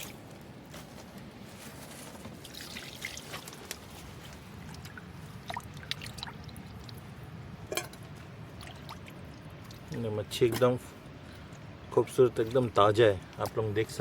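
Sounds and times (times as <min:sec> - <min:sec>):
small splashes: 0:00.0 - 0:00.3, 0:02.4 - 0:10.7
water pouring over fish: 0:02.4 - 0:03.7, 0:04.4 - 0:07.1.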